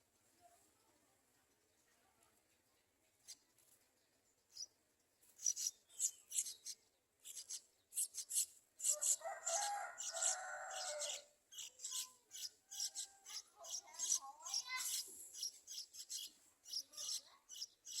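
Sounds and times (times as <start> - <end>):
nestlings chirping: 4.5 - 18.0.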